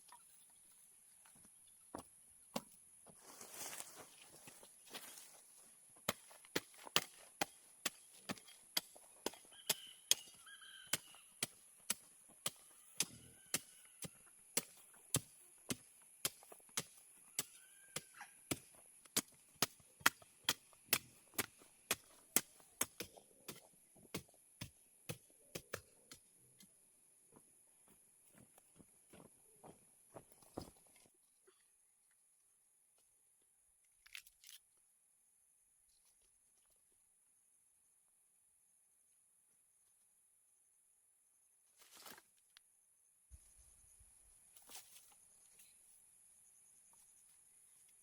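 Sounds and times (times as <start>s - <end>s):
blade chopping sugarcane: 6.0s - 25.9s
faint bird chirps: 9.4s - 11.4s.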